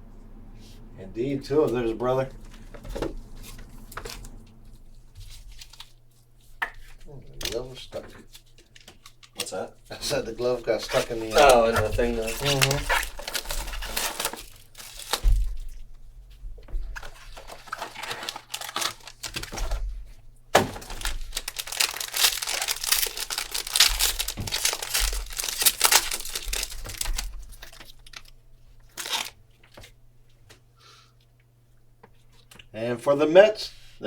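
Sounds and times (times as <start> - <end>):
plastic packaging crinkling and tearing: 2.4 - 6.2, 6.8 - 15.8, 16.8 - 30.0.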